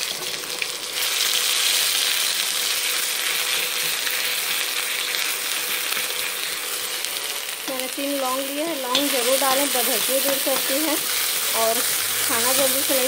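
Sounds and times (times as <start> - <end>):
paste sizzling in hot oil: 0.0 - 13.0.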